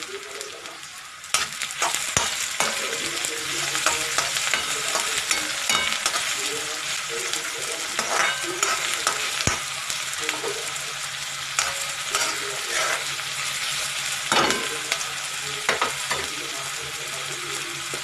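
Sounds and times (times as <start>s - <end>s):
onion and tomato sizzling in oil: 0.0s - 18.0s
spoon scraping and knocking pan: 1.3s - 10.8s, 11.5s - 15.1s.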